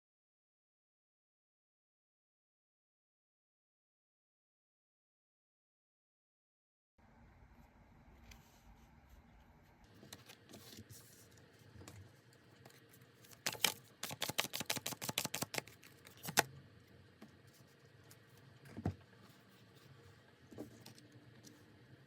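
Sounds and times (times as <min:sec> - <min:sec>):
cards being shuffled: 0:12.6 - 0:16.5
sharp card snaps: 0:13.4 - 0:16.5.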